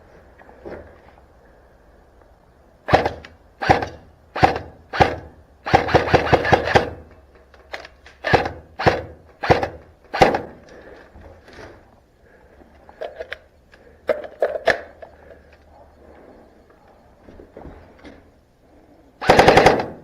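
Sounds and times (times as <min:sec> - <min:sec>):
airsoft rifle full-auto burst: 0:02.9 - 0:07.1, 0:08.2 - 0:10.6, 0:19.2 - 0:20.0.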